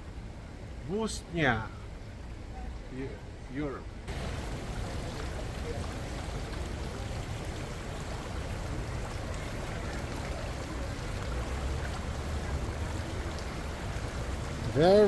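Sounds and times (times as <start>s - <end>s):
river water rushing: 4.1s - 15.0s.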